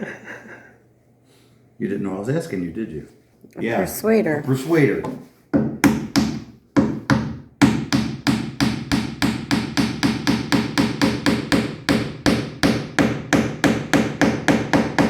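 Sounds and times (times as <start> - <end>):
mallet striking wood: 5.0 - 15.0.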